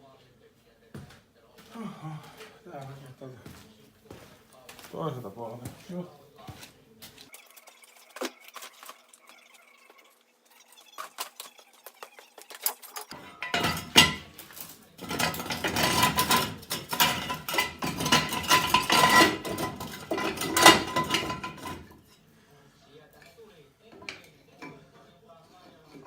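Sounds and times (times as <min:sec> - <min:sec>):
metal scraping and clinking: 0:10.8 - 0:22.2.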